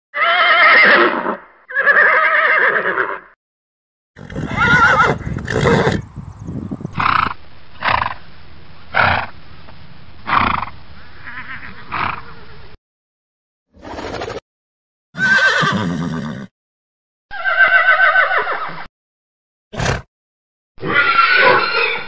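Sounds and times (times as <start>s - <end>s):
horse neighing: 0.2s - 3.4s, 4.2s - 8.0s, 11.2s - 12.4s, 15.2s - 16.5s, 17.3s - 18.8s, 20.8s - 22.0s
horse breathy snorts: 4.2s - 6.1s.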